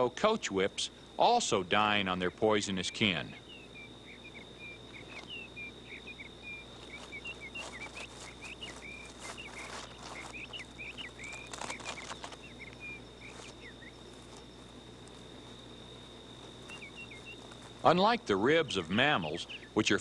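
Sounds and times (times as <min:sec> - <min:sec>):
steady high-pitched tone: 0:00.0 - 0:20.0
bird chirping quickly: 0:03.2 - 0:14.0, 0:16.6 - 0:17.5, 0:18.7 - 0:20.0
soft rustles: 0:06.7 - 0:17.9.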